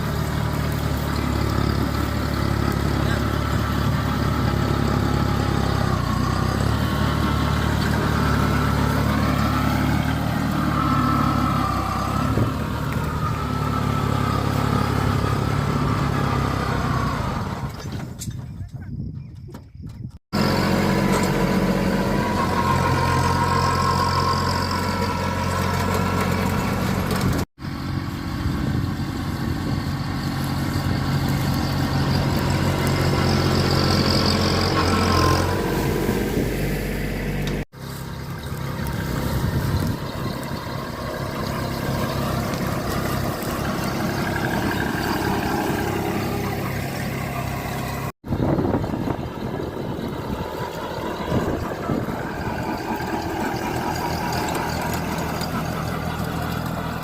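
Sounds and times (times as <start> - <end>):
tractor engines running: 0.0 - 57.0.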